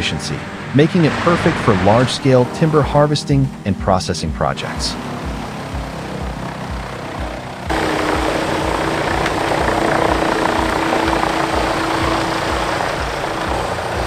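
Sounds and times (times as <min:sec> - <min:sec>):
steady hum: 0:00.1 - 0:14.0
machine engine low pulse: 0:04.8 - 0:14.0.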